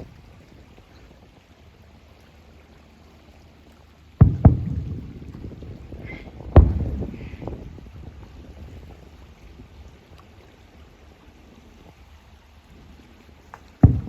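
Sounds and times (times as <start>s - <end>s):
fireworks booming: 4.2s - 8.9s.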